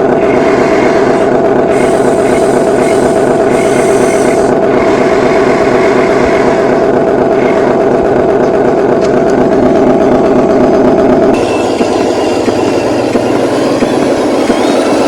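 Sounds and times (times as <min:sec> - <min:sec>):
toy machine motor droning: 0:00.0 - 0:07.8, 0:11.3 - 0:15.0.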